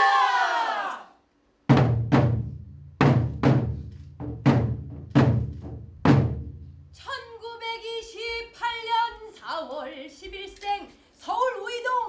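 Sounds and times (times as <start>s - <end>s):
deep drum strikes: 1.7s - 6.8s.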